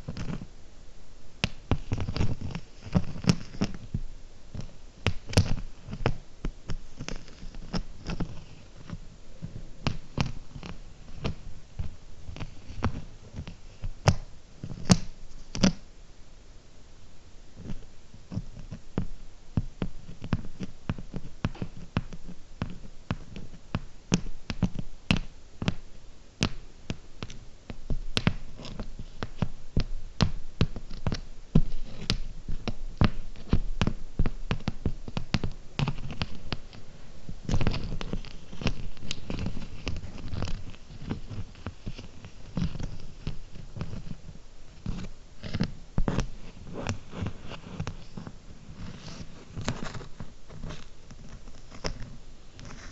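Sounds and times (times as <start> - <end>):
scratching: 1.4 - 15.8, 26.4 - 52.9.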